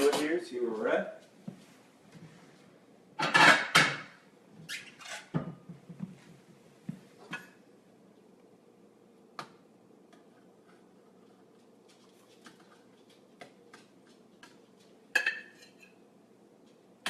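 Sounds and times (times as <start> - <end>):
cookware and utensils clattering: 3.2 - 4.2, 13.7 - 16.1.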